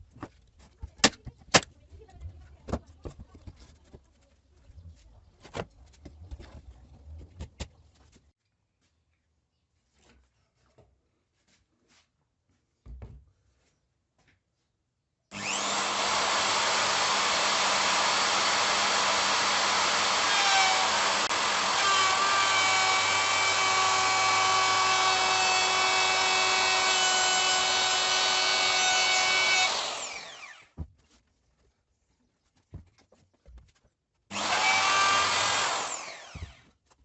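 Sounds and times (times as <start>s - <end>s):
power tool running: 15.3s - 30.8s, 34.3s - 36.7s.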